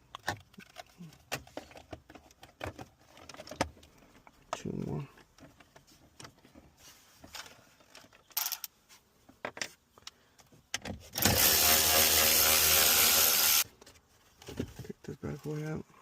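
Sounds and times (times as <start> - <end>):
handheld power driver running: 11.2 - 13.6.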